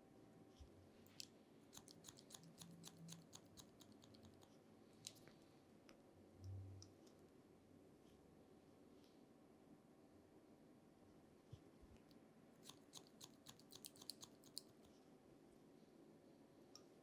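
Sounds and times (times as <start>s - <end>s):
scissors snipping hair: 1.7s - 4.5s, 12.6s - 14.9s.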